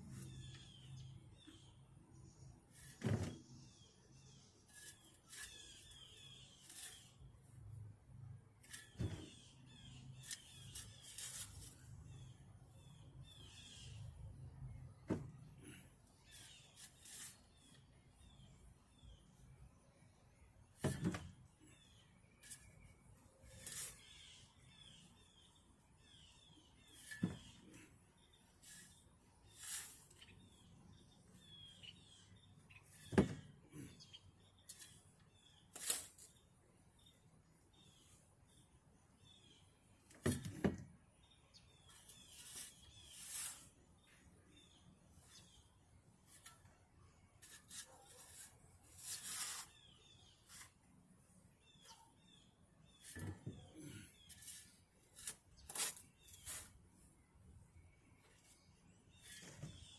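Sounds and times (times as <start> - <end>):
birdsong chirps: 0.0 - 59.9
shovel blade scraping dirt: 4.6 - 7.3, 8.6 - 11.9, 15.7 - 17.8, 23.4 - 24.4, 28.6 - 30.4, 34.6 - 36.4, 42.1 - 43.8, 47.4 - 50.8, 53.0 - 56.8
light scraping: 21.8 - 24.4, 47.4 - 50.8.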